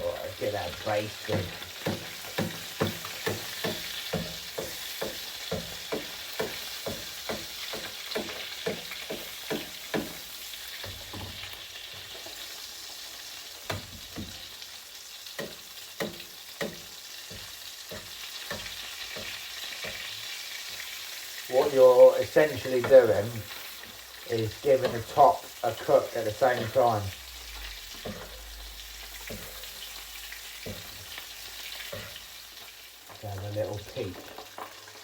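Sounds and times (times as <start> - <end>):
fish sizzling in a pan: 0.0 - 35.0
spoon scraping and tapping pan: 1.2 - 12.4, 15.2 - 20.9, 24.6 - 27.0, 27.6 - 33.3.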